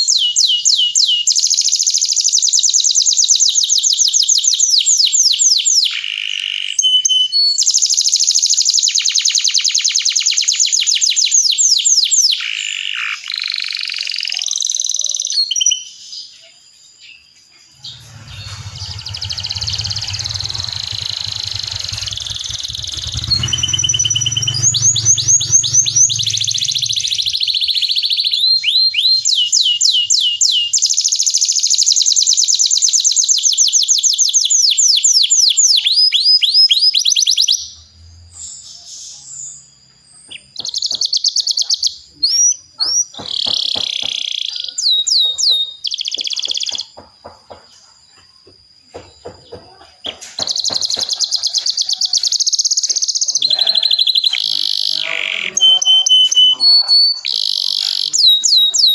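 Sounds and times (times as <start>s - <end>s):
canary singing rolling trills: 17.6s - 32.8s, 35.1s - 48.2s, 49.0s - 58.9s.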